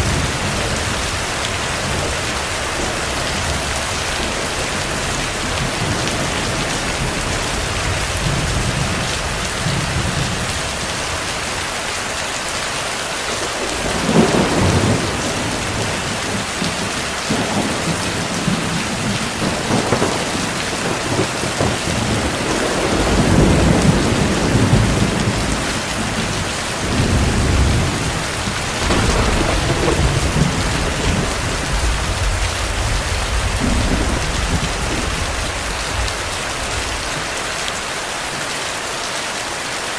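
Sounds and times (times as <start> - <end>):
heavy rain falling: 0.0 - 39.9
distant thunder rolling: 13.4 - 37.2.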